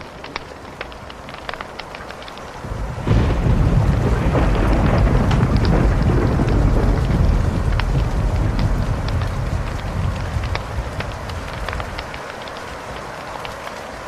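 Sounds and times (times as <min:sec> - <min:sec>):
fire crackling with pops: 0:00.0 - 0:14.0
deep rumble of thunder: 0:02.6 - 0:12.1.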